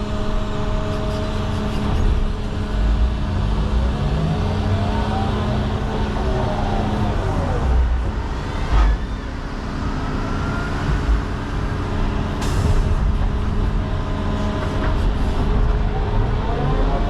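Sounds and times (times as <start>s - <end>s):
excavator diesel engine running: 0.0s - 17.0s
hydraulics whining: 0.0s - 17.0s.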